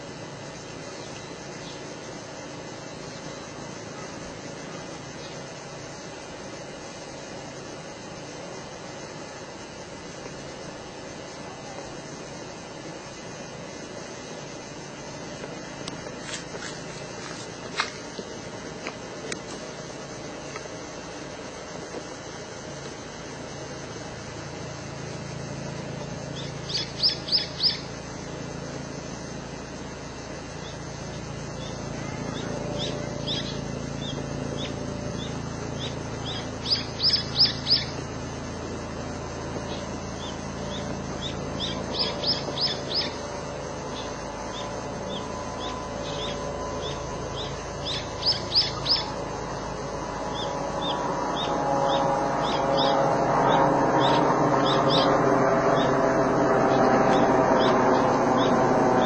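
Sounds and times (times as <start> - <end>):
background traffic rumble: 0.0 - 59.0
songbird singing: 0.0 - 59.0.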